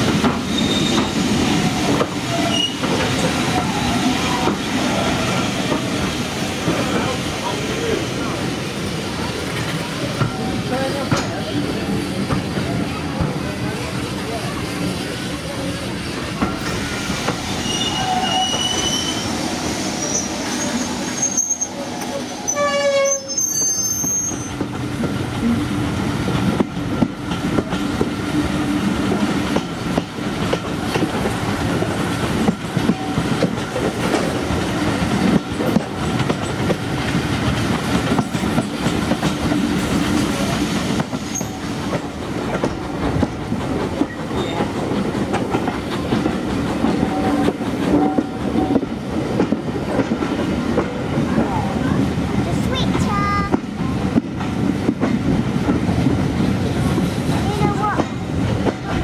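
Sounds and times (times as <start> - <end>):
train wheels clickety-clack: 0.0 - 59.0
steam train whistle: 17.6 - 19.3, 22.5 - 24.5.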